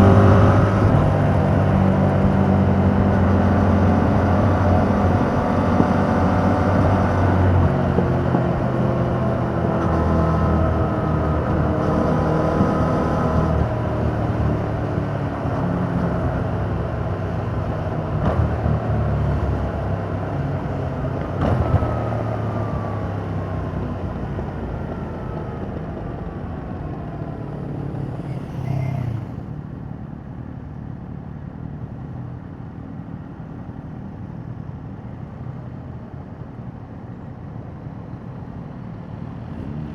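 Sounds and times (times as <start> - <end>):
motorcycle engine: 0.0 - 29.8.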